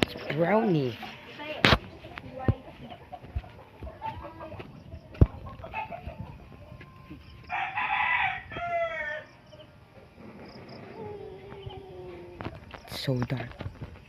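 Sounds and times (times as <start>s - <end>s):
rooster crowing: 7.0s - 9.7s.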